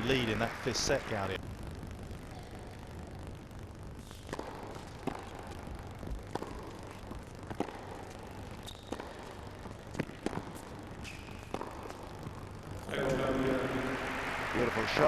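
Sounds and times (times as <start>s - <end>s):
low arena hum: 0.0s - 15.0s
racket hitting tennis ball: 4.2s - 5.6s, 6.3s - 12.0s.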